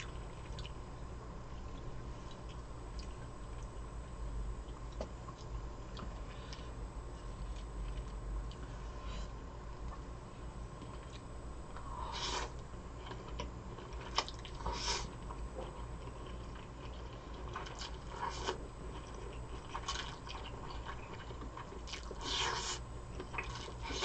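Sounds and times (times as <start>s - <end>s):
close chewing and biting: 12.2s - 24.0s.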